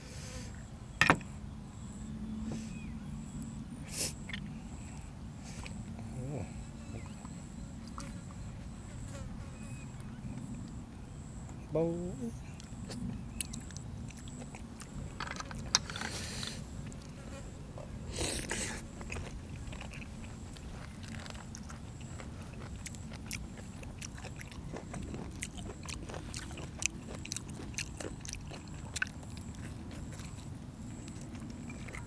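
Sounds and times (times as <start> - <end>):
person chewing and crunching: 12.5 - 17.3, 18.1 - 32.0.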